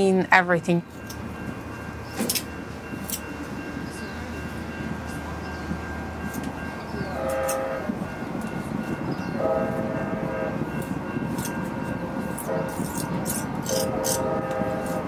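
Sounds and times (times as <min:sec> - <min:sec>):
train rumbling past: 0:00.0 - 0:15.0
train horn blasts: 0:07.0 - 0:08.2, 0:09.2 - 0:10.9, 0:12.2 - 0:15.0.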